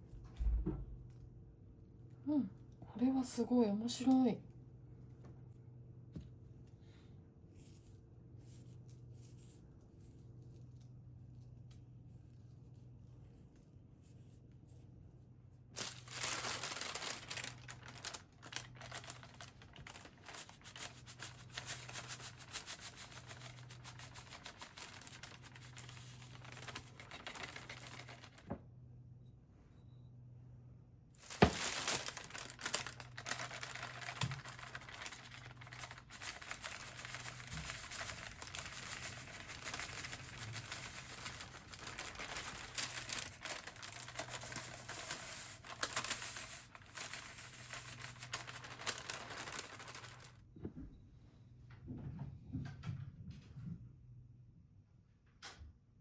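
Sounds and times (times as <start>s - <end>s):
crinkling of crumpled material: 15.8s - 28.6s, 31.2s - 50.5s.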